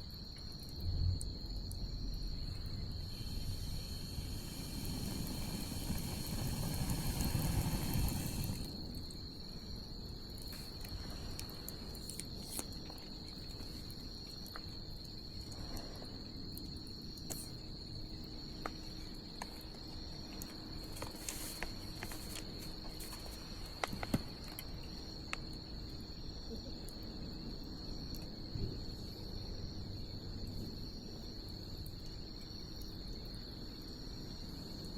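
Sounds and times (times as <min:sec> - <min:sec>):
crickets trilling: 0:00.0 - 0:34.9
wood bonfire crackling and popping: 0:03.7 - 0:08.9.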